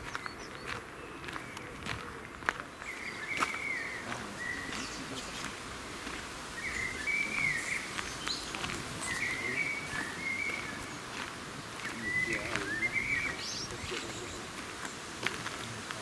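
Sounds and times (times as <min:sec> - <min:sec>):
faint outdoor hiss: 0:00.0 - 0:16.0
songbird warbling: 0:02.8 - 0:05.5, 0:06.5 - 0:15.1.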